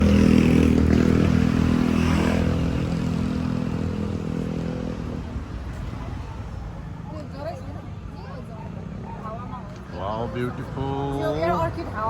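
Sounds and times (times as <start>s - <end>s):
motorcycle engine running: 0.0s - 4.7s.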